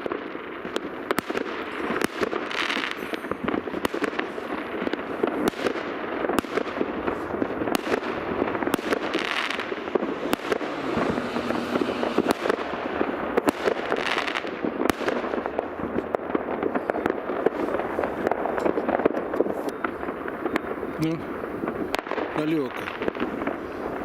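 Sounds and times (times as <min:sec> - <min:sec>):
fireworks crackling and banging: 0:00.0 - 0:24.0
continuous rumble: 0:00.8 - 0:16.4.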